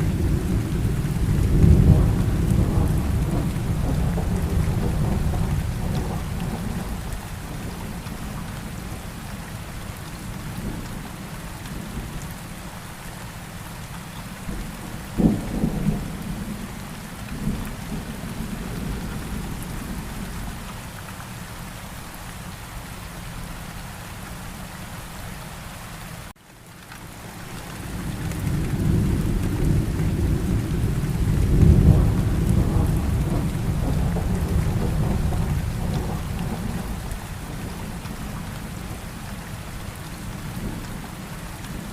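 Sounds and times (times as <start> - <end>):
thunder rumbling: 0.0 - 9.0, 14.5 - 20.8, 27.8 - 41.9
steady rain: 0.0 - 41.9
sharp thunderclap: 0.1 - 7.0, 15.2 - 16.6, 28.5 - 38.0.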